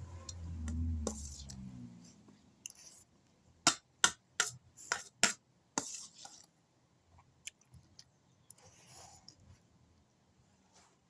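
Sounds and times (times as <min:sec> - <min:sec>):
soft eating noises: 0:05.8 - 0:11.0.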